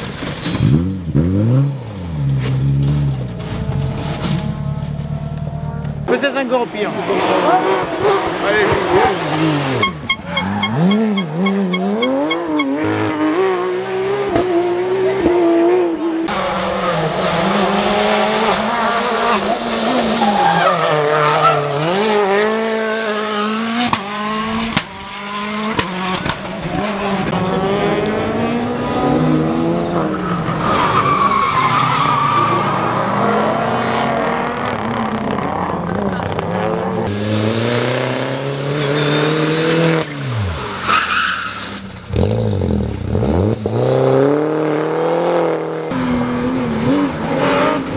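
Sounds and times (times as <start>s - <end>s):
rally car engines revving: 0.0s - 47.9s
tyres skidding: 16.3s - 27.5s, 29.2s - 44.8s.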